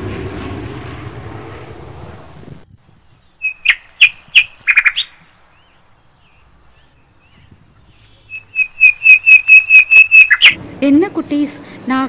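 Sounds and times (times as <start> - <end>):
shrill bird chirps: 2.9 - 10.6.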